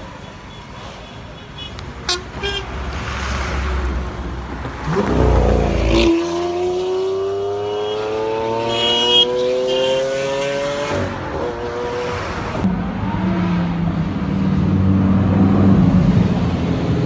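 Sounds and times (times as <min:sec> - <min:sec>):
supercar engine at full throttle: 0:04.6 - 0:17.0.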